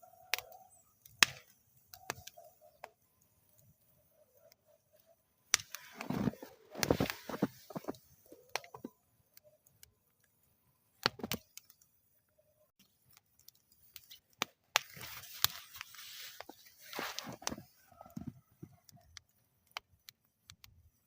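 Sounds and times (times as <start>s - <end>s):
wood fire crackling: 0.0s - 21.0s
fire popping: 0.2s - 12.0s, 12.8s - 21.0s
fire hissing: 5.5s - 8.9s, 14.8s - 18.1s.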